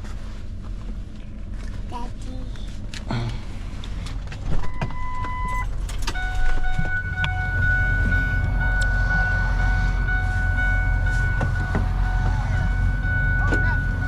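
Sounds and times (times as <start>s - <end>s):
vehicle engine rumbling: 0.0s - 14.0s
short electronic beep: 4.7s - 14.0s
high electronic warning tone: 4.8s - 14.0s.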